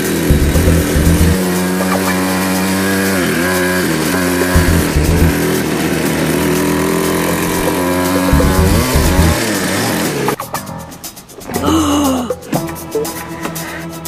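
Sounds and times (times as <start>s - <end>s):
engine-like drone: 0.0s - 10.4s.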